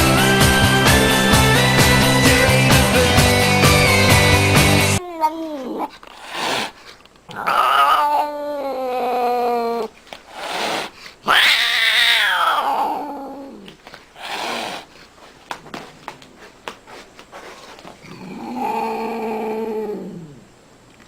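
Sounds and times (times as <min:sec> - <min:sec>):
cat yowling: 0:05.0 - 0:06.7, 0:07.3 - 0:14.8.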